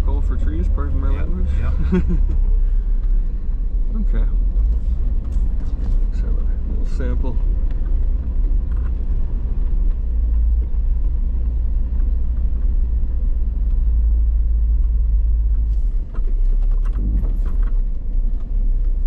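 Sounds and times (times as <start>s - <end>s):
vehicle engine running: 0.0s - 19.0s
sharp clicks and crackles: 7.2s - 14.0s.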